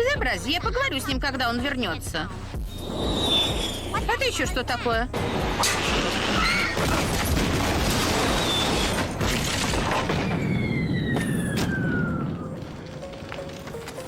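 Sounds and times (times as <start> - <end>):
falling whistle: 2.7 - 4.0, 10.2 - 12.6
cartoon crash and explosion: 5.2 - 12.7.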